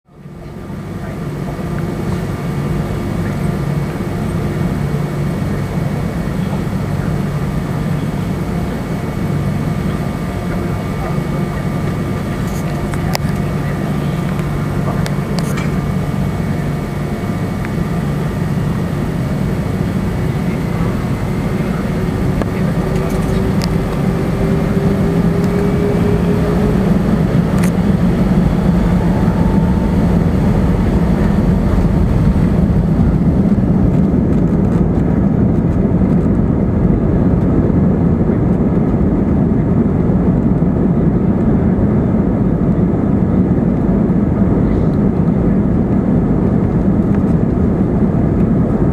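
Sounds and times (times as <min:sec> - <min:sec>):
jet engines roaring: 0:00.2 - 0:48.9
faint rising whine: 0:01.8 - 0:35.8.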